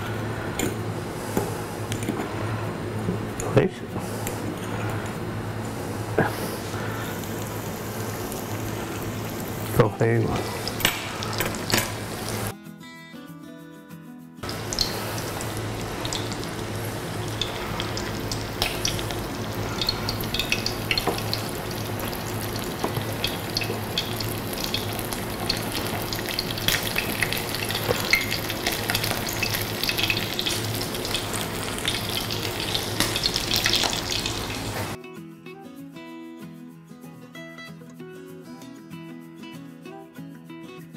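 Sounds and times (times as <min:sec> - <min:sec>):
cheese frying in hot oil: 0:06.4 - 0:12.5, 0:14.4 - 0:35.0.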